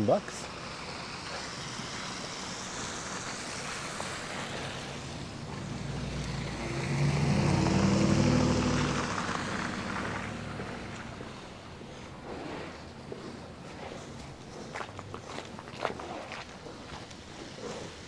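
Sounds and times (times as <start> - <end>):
street noise hiss: 0.0 - 18.0
vehicle driving past: 1.2 - 13.0.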